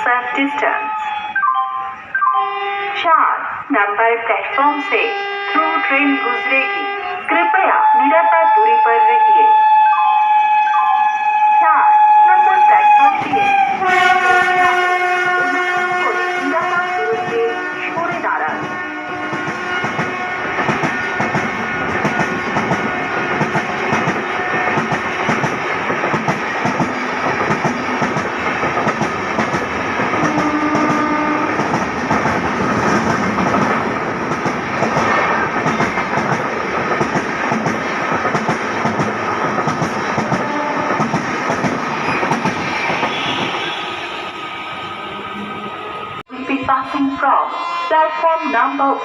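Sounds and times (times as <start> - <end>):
train passing at speed: 9.9 - 46.9.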